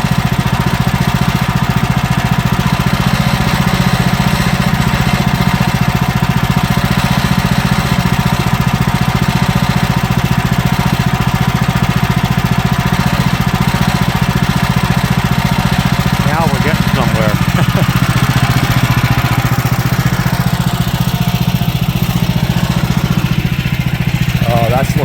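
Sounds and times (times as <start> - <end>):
sawmill gas engine running: 0.0 - 25.0.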